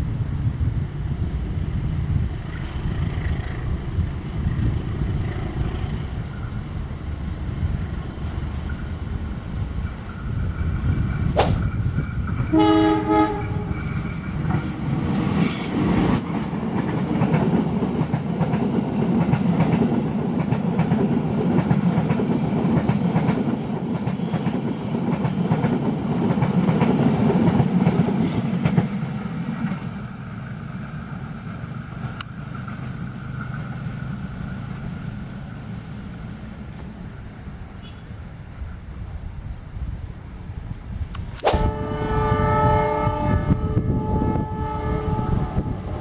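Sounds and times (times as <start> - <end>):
train wheels rumbling and clacking: 0.0 - 37.9
train horn blast: 12.4 - 14.1, 41.5 - 46.0.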